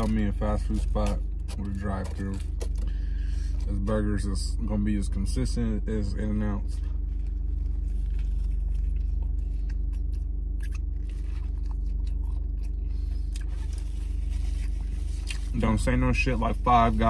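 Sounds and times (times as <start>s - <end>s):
steady low hum: 0.0s - 17.0s
person chewing a burger: 6.8s - 15.6s.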